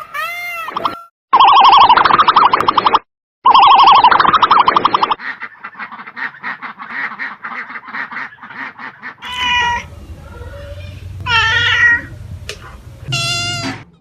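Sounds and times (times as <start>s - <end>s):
warbling siren-like call: 0.7s - 5.2s
duck quacking: 5.2s - 9.9s
cat meowing: 9.2s - 9.9s, 11.2s - 12.2s, 13.1s - 13.8s.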